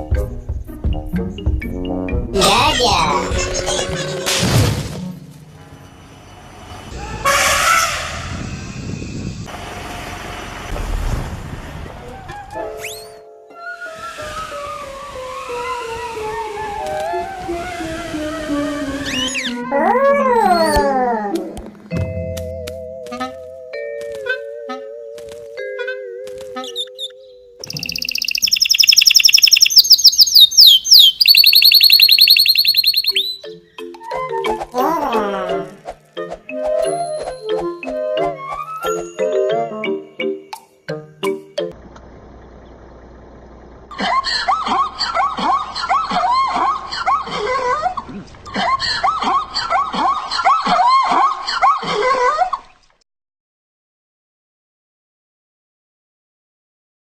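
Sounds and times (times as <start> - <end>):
bird singing high trill: 26.7 - 33.5
high-pitched chattering calls: 27.6 - 33.4.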